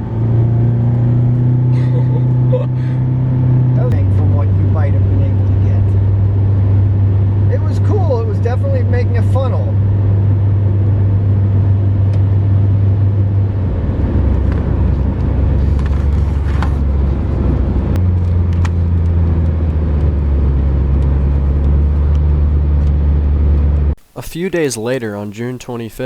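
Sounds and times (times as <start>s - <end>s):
car road and engine drone: 0.0s - 26.0s.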